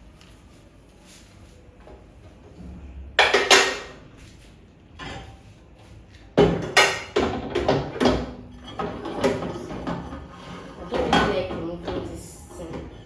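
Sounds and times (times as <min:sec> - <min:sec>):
microwave oven knocks and clatter: 0:06.4 - 0:10.2.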